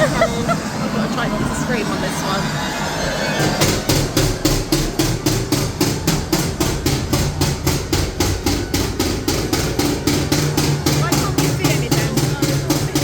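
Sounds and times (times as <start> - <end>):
low hum: 0.0 - 13.0
fast even knocking: 3.4 - 13.0.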